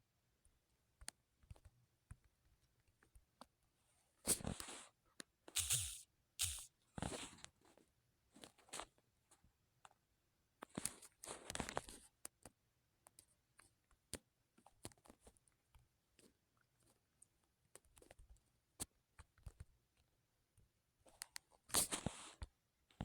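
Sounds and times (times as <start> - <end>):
short rustling bursts: 5.6 - 6.7.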